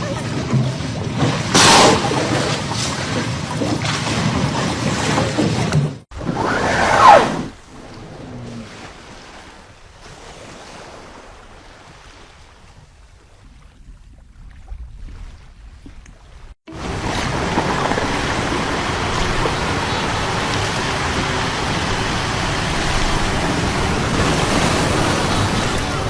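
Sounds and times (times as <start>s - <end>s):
wind at sea: 0.0s - 26.0s
sea water rushing: 6.2s - 12.6s, 16.7s - 26.0s.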